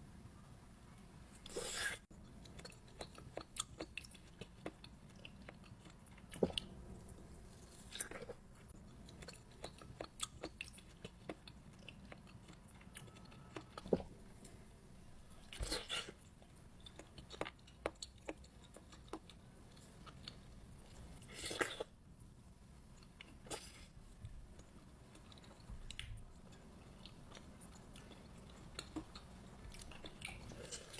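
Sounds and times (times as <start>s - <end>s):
person chewing juicy fruit: 1.5s - 14.5s, 15.4s - 21.9s.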